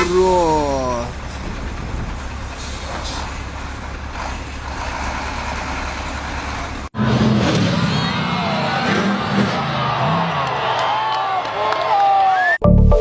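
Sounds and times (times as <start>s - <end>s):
vehicle engine and road noise: 0.0s - 10.8s.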